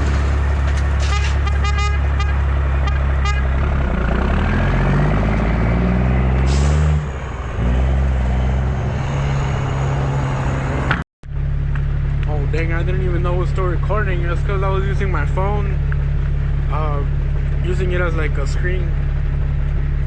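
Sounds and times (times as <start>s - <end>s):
diesel truck engine revving: 0.0s - 20.0s.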